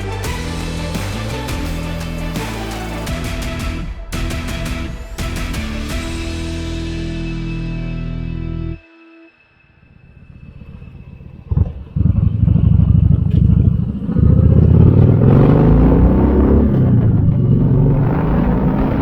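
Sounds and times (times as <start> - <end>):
motorcycle engine accelerating: 12.0 - 19.0.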